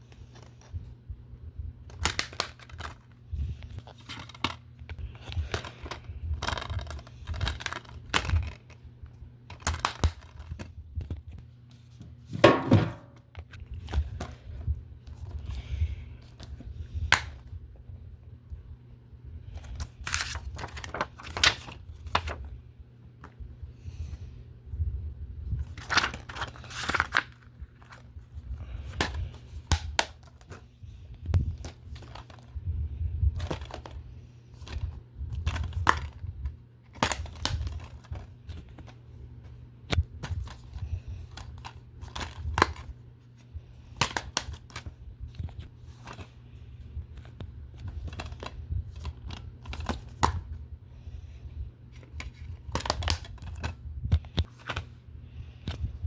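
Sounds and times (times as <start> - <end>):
steady low hum: 0.0 - 56.0
crinkling: 1.8 - 12.0, 19.4 - 22.5, 25.6 - 32.6
plastic disc cases clicking: 9.5 - 10.7.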